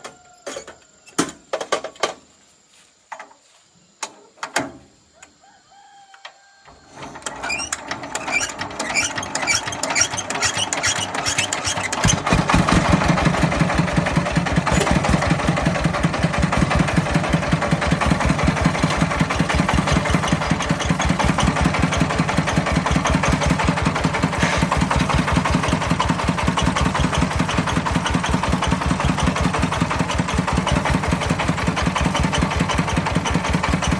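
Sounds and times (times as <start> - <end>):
farm vehicle engine chugging: 7.0 - 33.9
sharp metallic clicks and knocks: 14.7 - 15.2.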